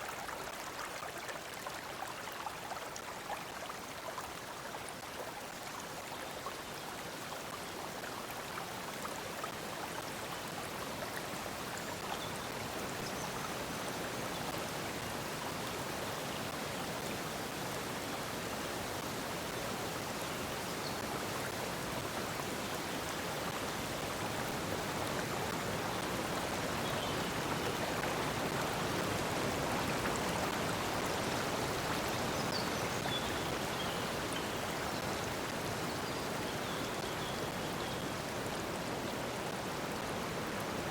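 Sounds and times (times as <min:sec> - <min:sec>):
stream water rushing: 0:13.6 - 0:40.9.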